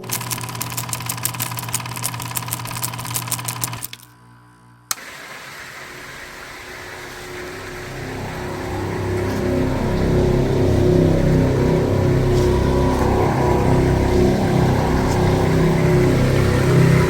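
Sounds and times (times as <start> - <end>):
fast mechanical clatter: 0.0 - 4.1
steady hum: 2.4 - 17.0
motor rumble: 5.6 - 17.0.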